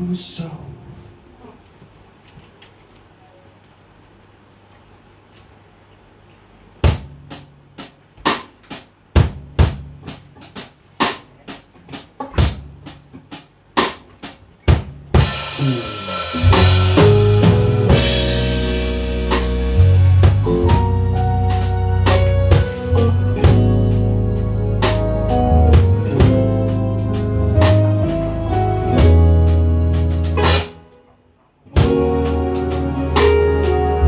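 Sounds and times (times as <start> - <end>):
drum kit hits: 6.8 - 30.9, 31.8 - 34.0
rock band playing: 14.7 - 31.0, 31.7 - 34.0.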